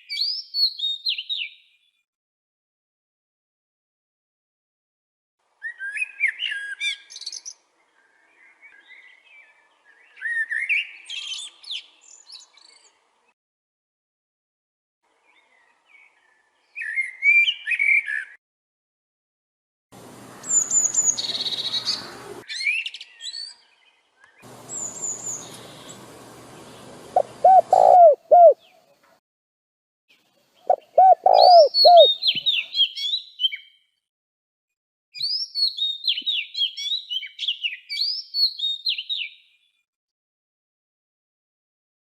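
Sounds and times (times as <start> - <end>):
fast high birdsong: 20.0 - 22.4, 24.4 - 28.6, 30.7 - 32.6
high bird chirps: 20.3 - 23.6, 24.4 - 28.6, 30.7 - 33.7
faint hiss: 24.5 - 27.6
low cooing or hooting: 27.1 - 28.6, 30.7 - 32.1.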